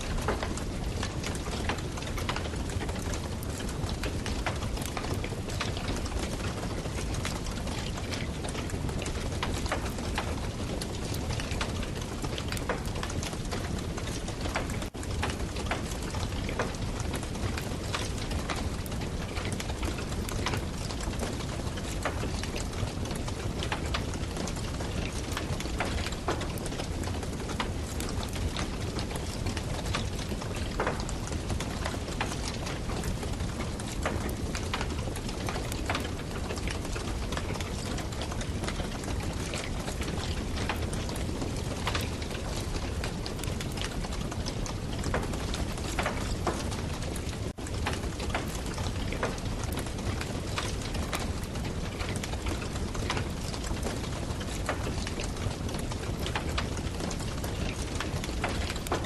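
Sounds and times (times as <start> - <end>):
campfire crackling and popping: 0.1 - 59.0.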